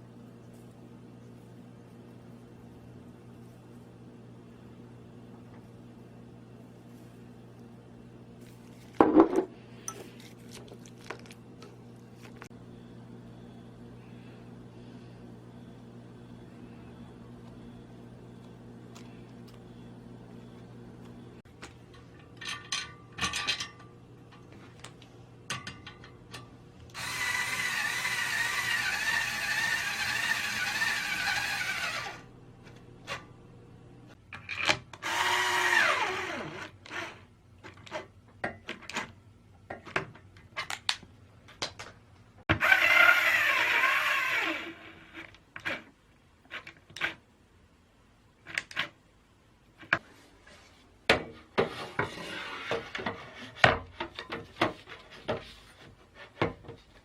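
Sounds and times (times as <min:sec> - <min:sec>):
kitchen appliance motor whirring: 0:26.9 - 0:32.3, 0:35.0 - 0:37.3, 0:42.5 - 0:45.8
clicks and knocks of handling: 0:37.6 - 0:42.3.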